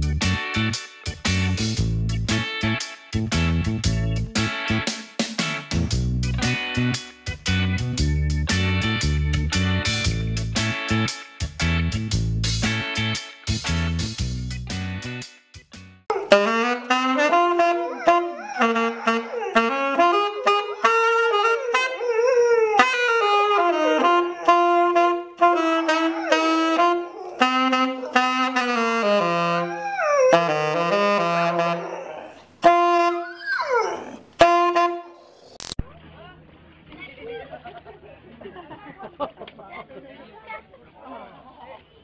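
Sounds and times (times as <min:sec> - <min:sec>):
saxophone playing slow tune: 0:16.1 - 0:35.2
dog howling: 0:16.1 - 0:35.6.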